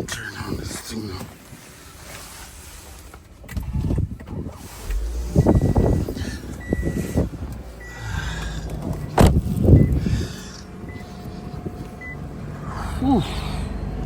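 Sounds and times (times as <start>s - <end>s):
car engine rumble: 0.0s - 14.0s
electronic warning chime beeping: 4.9s - 7.2s.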